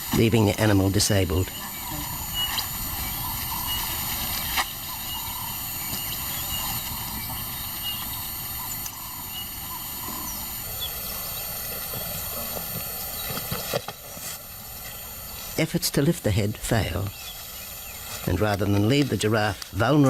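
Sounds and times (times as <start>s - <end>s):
outdoor bush ambience: 0.0s - 20.0s
faint high chirps: 0.6s - 13.6s.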